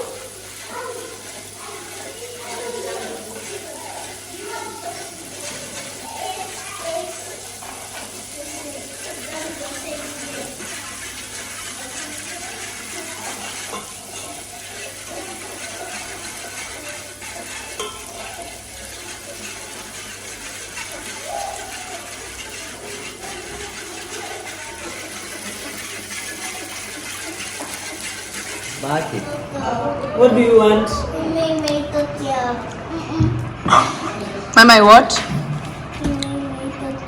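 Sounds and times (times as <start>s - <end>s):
kitchen hiss: 0.0s - 29.5s
faint voices: 0.0s - 37.0s.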